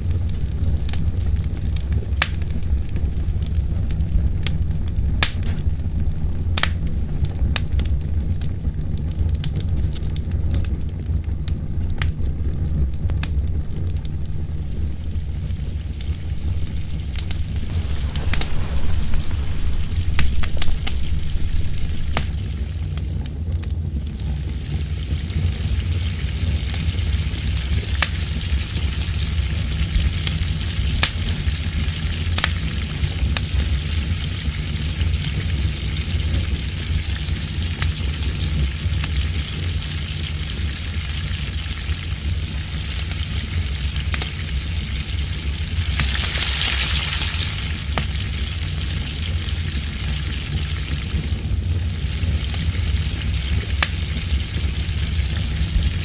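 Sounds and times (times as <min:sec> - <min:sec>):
wind rumble on microphone: 0:11.6 - 0:23.5
food sizzling in a pan: 0:17.4 - 0:22.4.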